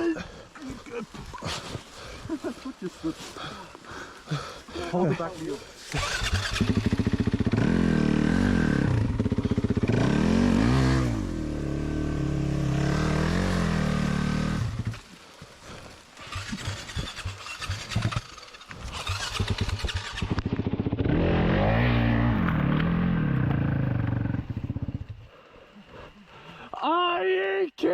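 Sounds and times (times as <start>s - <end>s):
dirt bike engine revving: 5.9s - 15.0s, 15.8s - 25.1s.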